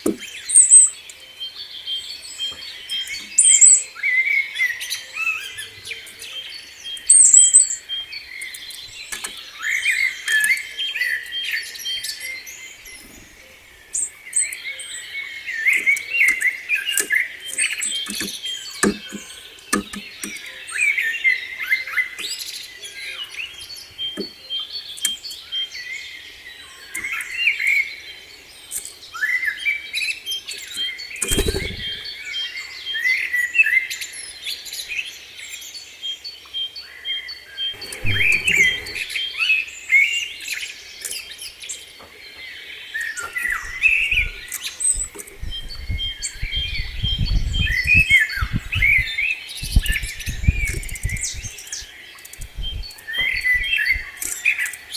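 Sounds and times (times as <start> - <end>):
songbirds chirping: 0.0 - 54.9
low rumbling bursts: 37.8 - 39.2
rapid ticking bird note: 37.8 - 39.3.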